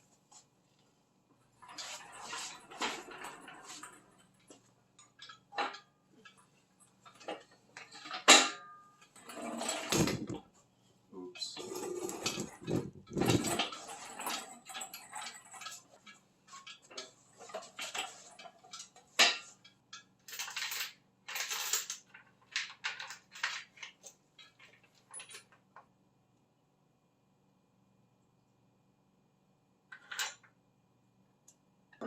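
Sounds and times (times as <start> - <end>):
metal tools clinking and rattling: 1.6 - 10.4, 11.4 - 25.6.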